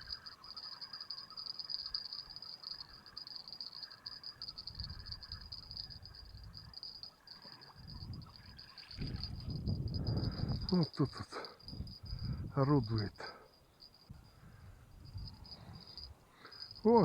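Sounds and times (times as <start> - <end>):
fainter broken insect calls: 0.0 - 14.4, 15.1 - 17.0
high-pitched insect trill: 0.0 - 17.0
wind buffeting microphone: 4.6 - 6.8, 7.7 - 13.1, 14.1 - 17.0.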